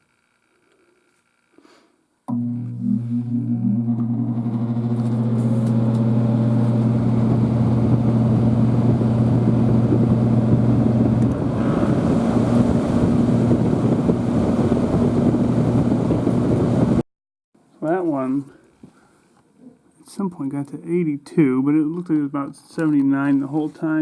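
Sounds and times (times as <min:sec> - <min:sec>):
air conditioner humming: 0:02.4 - 0:16.9.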